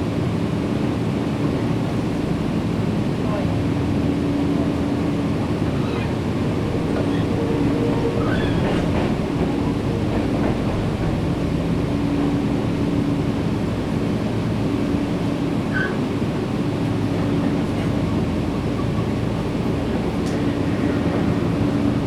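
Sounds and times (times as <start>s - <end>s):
electric train equipment hum: 0.0s - 22.0s.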